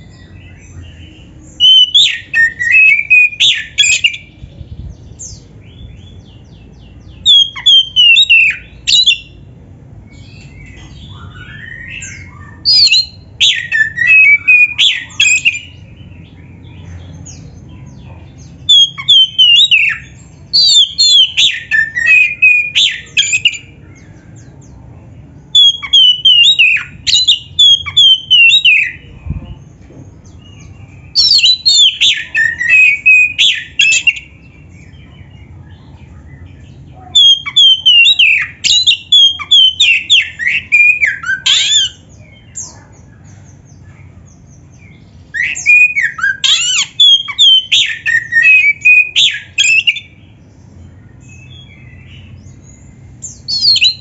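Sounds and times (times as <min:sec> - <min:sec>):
bird whistling and chattering: 0:00.0 - 0:04.4, 0:07.1 - 0:09.4, 0:10.1 - 0:15.9, 0:18.4 - 0:23.8, 0:25.5 - 0:29.1, 0:30.4 - 0:35.0, 0:36.5 - 0:42.9, 0:45.3 - 0:50.2, 0:51.2 - 0:54.0.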